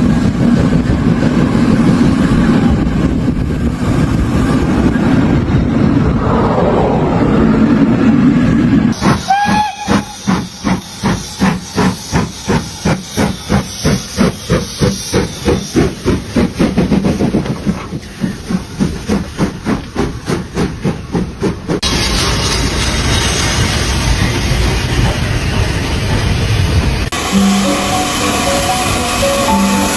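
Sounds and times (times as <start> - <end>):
steady rushing noise: 0.0 - 9.2
steam locomotive chuffing: 8.9 - 29.9
steam whistle toot: 9.0 - 12.5, 27.2 - 29.9.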